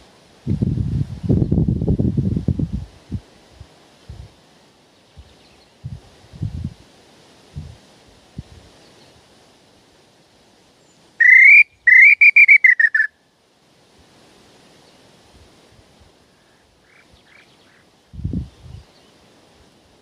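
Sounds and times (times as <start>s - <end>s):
whistled bird call: 11.2s - 13.2s.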